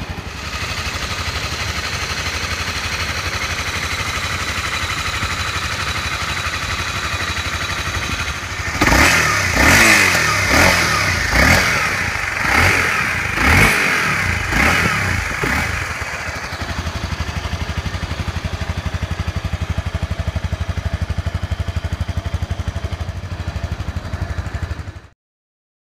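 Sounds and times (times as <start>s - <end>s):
motorcycle engine idling and revving: 0.0s - 25.2s.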